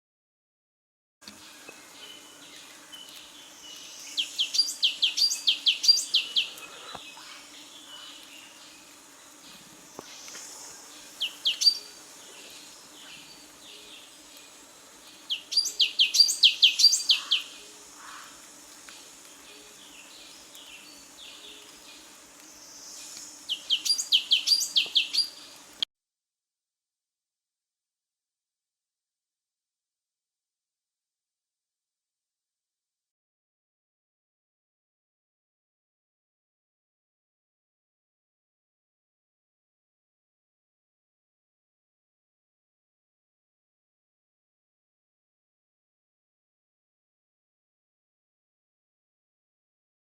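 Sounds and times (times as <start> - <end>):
songbird singing: 1.3 - 25.8.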